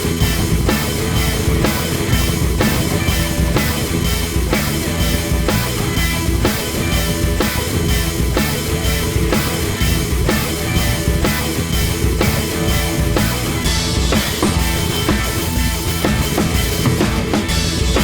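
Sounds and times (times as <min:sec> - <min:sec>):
rock music with drum beat: 0:00.0 - 0:18.0.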